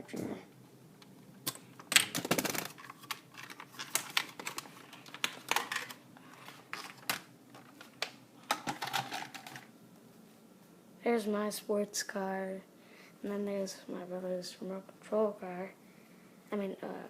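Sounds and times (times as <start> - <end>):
toy car clicks and rustles: 8.5 - 9.7.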